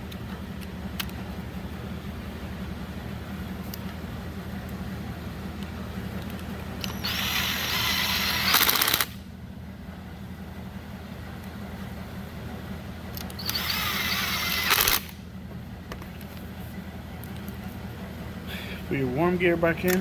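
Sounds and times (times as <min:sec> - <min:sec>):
steady low hum: 0:00.0 - 0:20.0
power screwdriver whirring: 0:06.8 - 0:09.2, 0:13.2 - 0:15.2.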